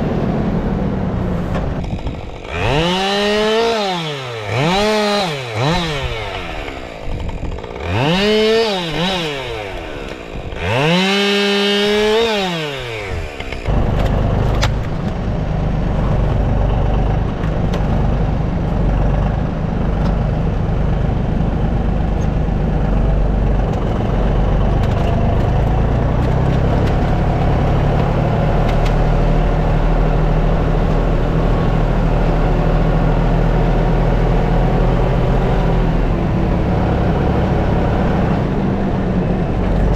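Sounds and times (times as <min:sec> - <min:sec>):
tractor engine rumbling: 0:00.0 - 0:39.9
chainsaw revving and cutting: 0:01.8 - 0:15.1, 0:22.4 - 0:38.6.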